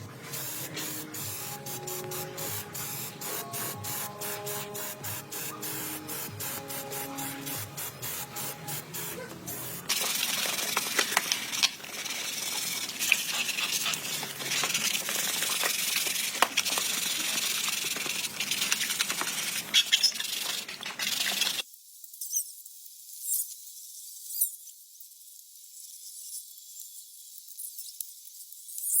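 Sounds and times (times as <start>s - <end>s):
high spraying hiss: 0.2s - 21.6s
scattered ticks: 9.9s - 21.6s.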